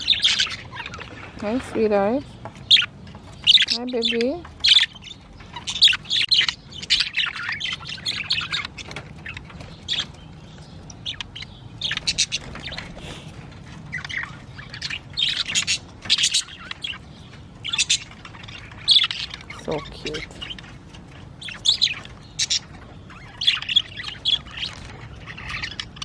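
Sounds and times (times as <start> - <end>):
budgies chirping and chattering: 0.0 - 26.0.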